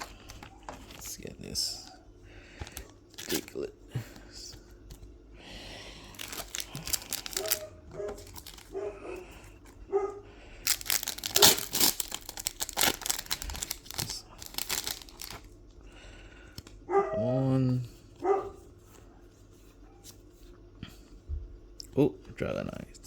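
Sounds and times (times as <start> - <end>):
foil wrapper crinkling and tearing: 0.0 - 1.8, 2.7 - 3.7, 6.1 - 8.8, 10.6 - 15.6
cards rustling and flicking: 0.0 - 1.9, 2.5 - 5.1, 6.1 - 8.8, 10.7 - 15.5.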